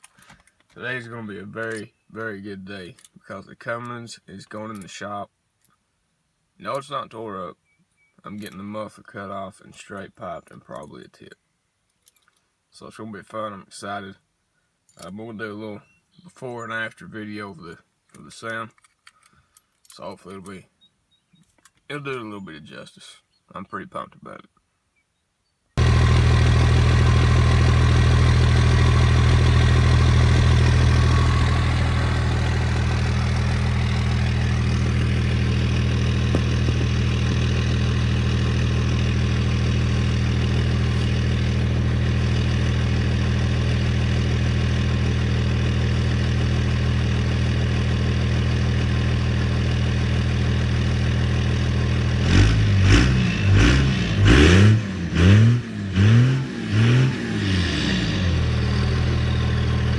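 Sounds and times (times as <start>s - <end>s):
diesel engine idling and revving: 25.8s - 59.9s.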